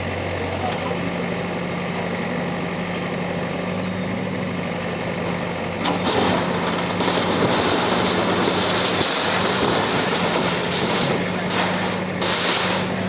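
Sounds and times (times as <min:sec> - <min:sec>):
bulldozer engine humming: 0:00.0 - 0:13.0.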